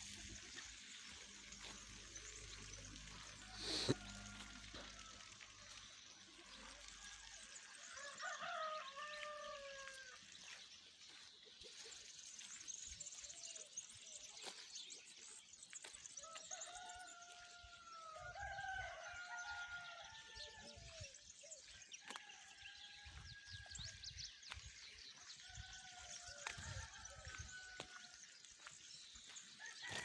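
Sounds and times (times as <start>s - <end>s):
small birds chirping: 0.0s - 4.1s, 10.4s - 17.5s, 27.4s - 30.0s
faint rooster crowing: 3.4s - 10.6s, 16.2s - 21.2s, 22.0s - 24.6s, 25.4s - 28.8s, 29.6s - 30.0s.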